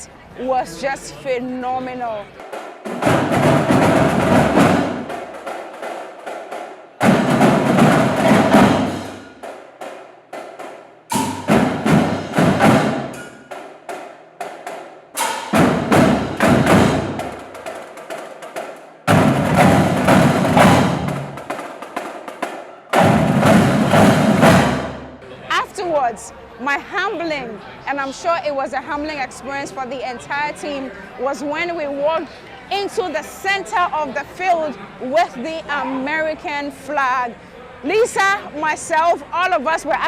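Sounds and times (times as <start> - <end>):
snare drum strokes: 2.4 - 25.2.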